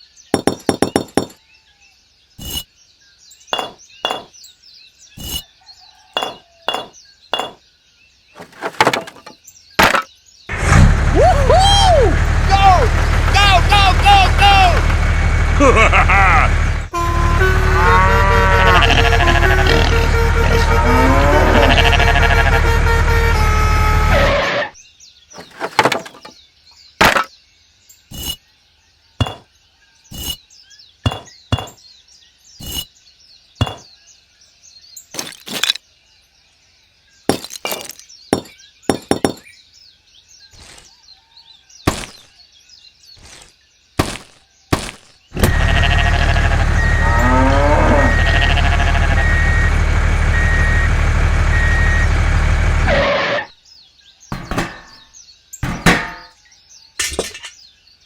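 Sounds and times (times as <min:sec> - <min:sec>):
mini bricks knocking and cracking: 0:08.4 - 0:10.1, 0:25.4 - 0:26.3, 0:27.0 - 0:27.3, 0:35.2 - 0:35.8, 0:37.3 - 0:39.4, 0:41.9 - 0:42.2.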